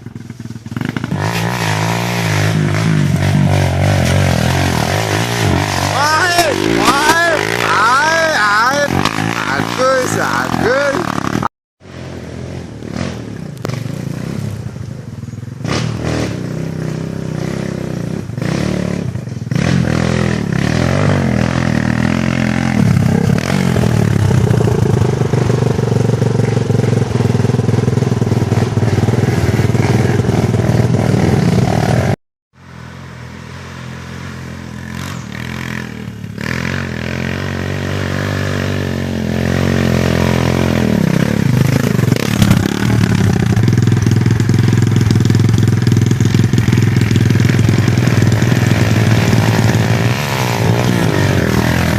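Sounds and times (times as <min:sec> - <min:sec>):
dirt bike engine revving: 0:00.0 - 0:14.7, 0:15.6 - 0:51.9.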